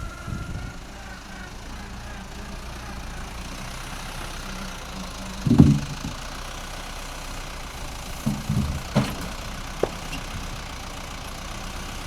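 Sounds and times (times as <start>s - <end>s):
low knocks: 5.4s - 6.3s, 7.8s - 10.7s.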